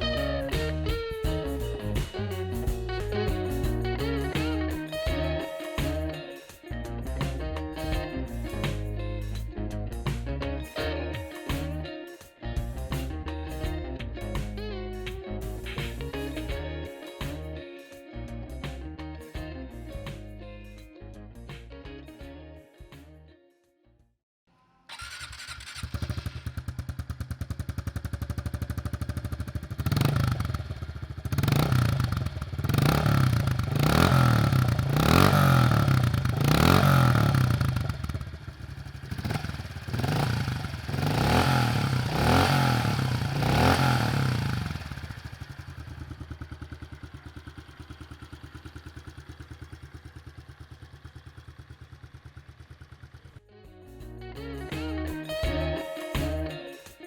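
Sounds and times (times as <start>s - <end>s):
engine revving: 24.9s - 46.9s
motorcycle engine starting and idling: 24.9s - 53.4s.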